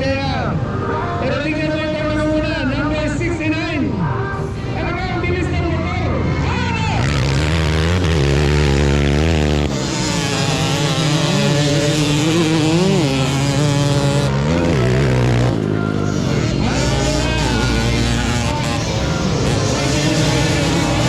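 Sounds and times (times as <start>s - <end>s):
dirt bike engines revving: 4.8s - 21.0s.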